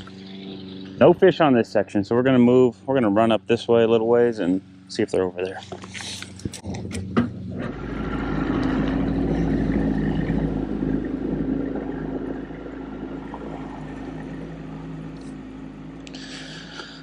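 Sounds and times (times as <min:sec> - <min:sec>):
water: 0:00.0 - 0:01.6, 0:07.6 - 0:17.0
outboard motor humming: 0:00.0 - 0:17.0.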